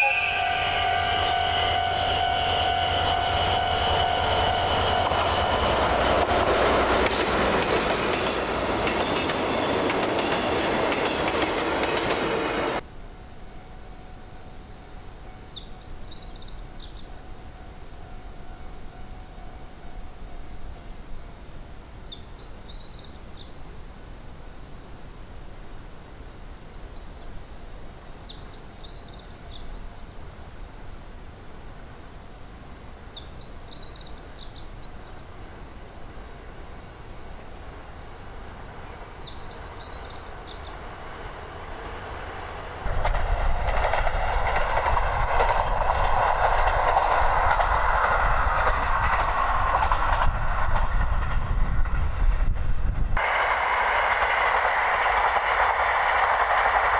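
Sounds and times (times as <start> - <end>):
insects calling in chorus: 0.0 - 42.9.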